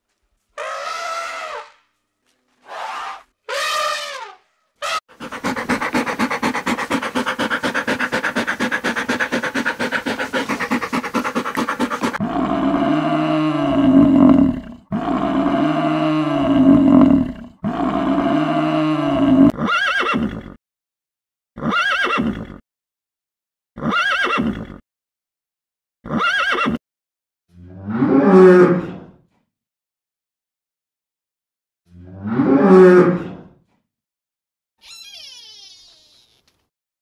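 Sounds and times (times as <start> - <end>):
elephant trumpet: 2.7 - 5.1
rapidly pulsing animal call: 2.7 - 14.2, 34.8 - 36.4
horse whinnies: 19.5 - 20.6, 21.6 - 22.6, 23.8 - 24.8, 26.1 - 26.8.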